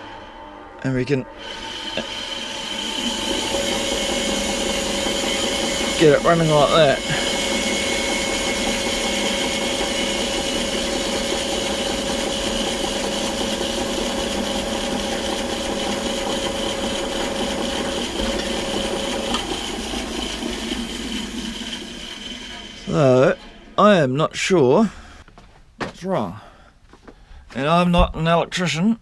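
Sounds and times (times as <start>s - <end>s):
bandsaw running with whine: 0.0s - 25.2s.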